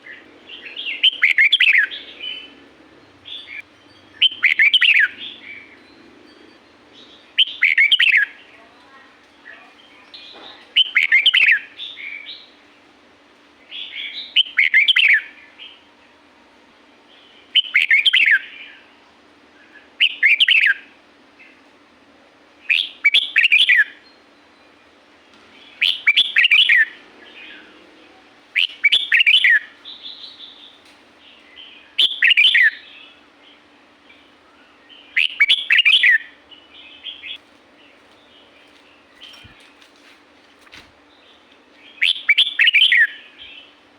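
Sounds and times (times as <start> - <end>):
bulbul singing warbled phrases: 0.0 - 2.6, 3.2 - 5.9, 6.9 - 12.6, 13.6 - 15.9, 25.5 - 39.7, 41.1 - 43.8.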